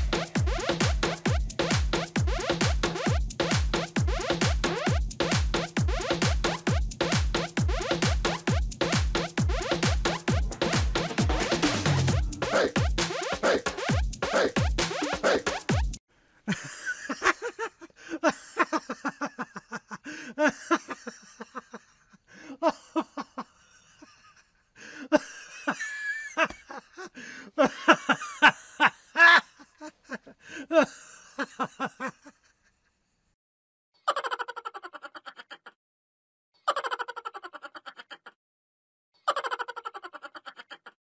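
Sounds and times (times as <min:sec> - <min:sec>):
laughter-like breathy pulses: 0:11.8 - 0:15.6, 0:16.4 - 0:33.0.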